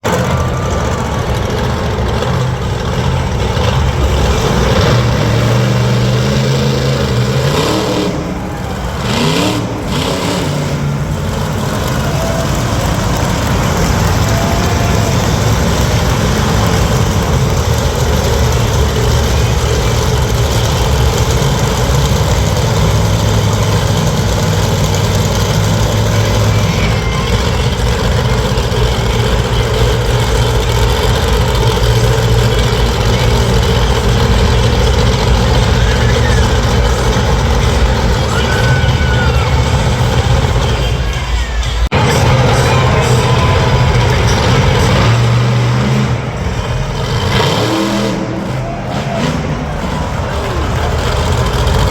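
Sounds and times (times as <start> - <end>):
monster truck engine idling and revving: 0.0 - 51.9.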